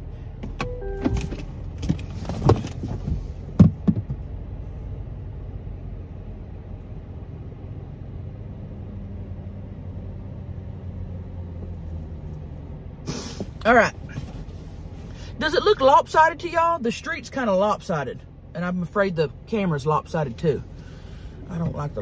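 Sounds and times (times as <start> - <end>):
car engine idling: 0.0 - 8.6, 9.4 - 22.0
knocks: 3.6 - 4.2.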